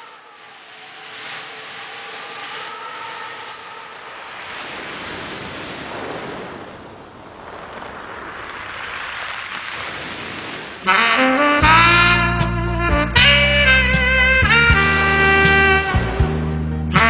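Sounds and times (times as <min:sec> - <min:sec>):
ocean waves washing in: 0:00.0 - 0:12.2
music: 0:10.9 - 0:17.0.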